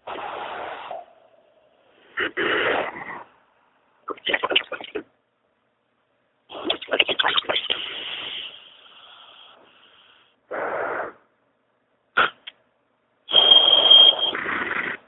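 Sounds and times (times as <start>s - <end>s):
hiss: 0.0s - 1.2s, 7.7s - 11.2s
noise bursts: 0.0s - 5.2s, 6.4s - 11.3s, 13.3s - 15.0s
garbled electronic phone noises: 4.1s - 5.1s, 13.3s - 14.4s
steady high tone: 13.3s - 14.4s.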